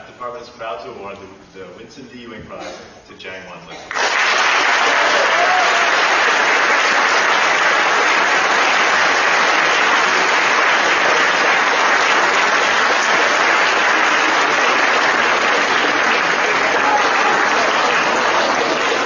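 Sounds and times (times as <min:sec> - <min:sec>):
audience applauding: 0:03.9 - 0:19.0.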